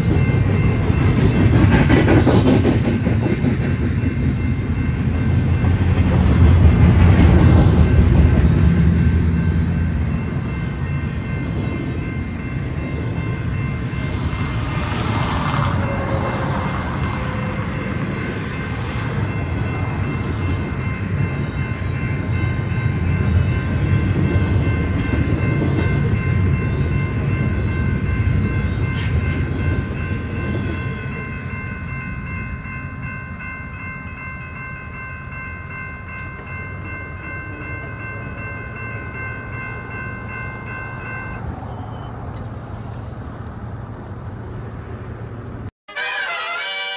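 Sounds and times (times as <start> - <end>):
freight train rolling past: 0.0 - 46.9
high ringing tones: 7.8 - 15.0, 15.7 - 42.2.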